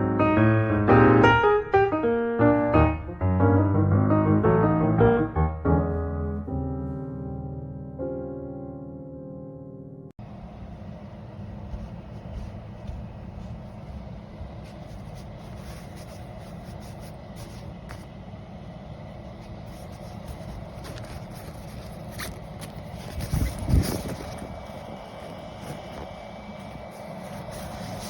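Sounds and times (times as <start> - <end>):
clothes dryer fan hum: 10.2 - 28.0
rustling and scraping handling: 11.5 - 28.0.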